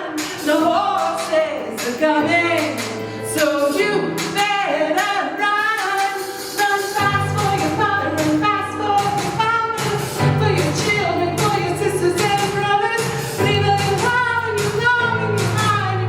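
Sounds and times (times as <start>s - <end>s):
woman singing pop song: 0.0s - 16.0s
backing track with bass: 7.0s - 16.0s.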